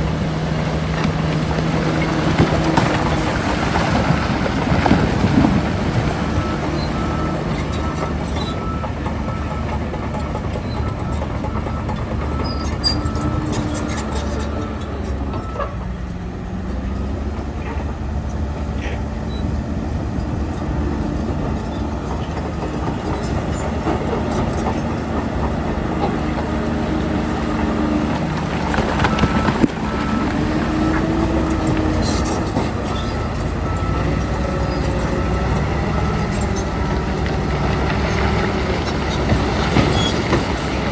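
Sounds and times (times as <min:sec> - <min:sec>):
heavy diesel machinery rumbling: 0:00.0 - 0:40.9
high reversing beeps: 0:06.2 - 0:15.8.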